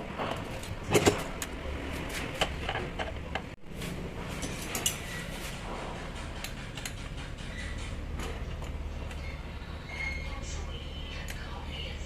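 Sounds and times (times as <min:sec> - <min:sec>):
metal parts and tools clicking: 0:04.3 - 0:05.4.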